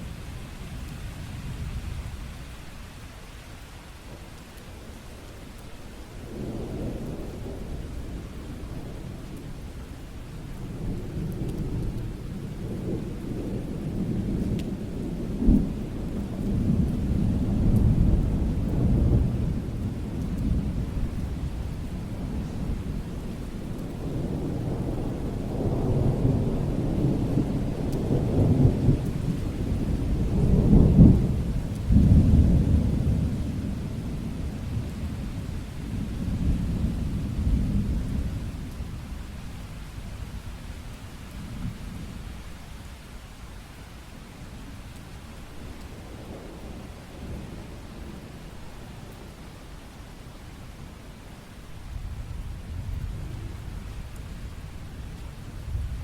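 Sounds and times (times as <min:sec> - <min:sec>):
steady rain: 0:00.0 - 0:56.0
thunder rumbling: 0:06.2 - 0:42.5, 0:51.3 - 0:56.0.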